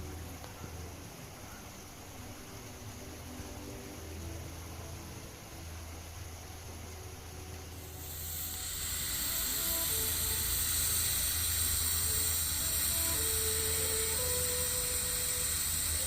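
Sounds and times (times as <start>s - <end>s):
steam hissing: 5.8s - 16.0s.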